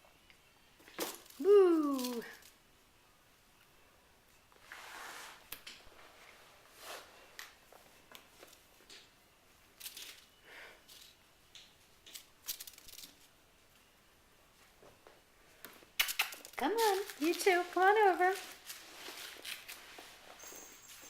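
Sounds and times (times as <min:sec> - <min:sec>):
kittens rustling and scuffling: 0:14.5 - 0:21.0.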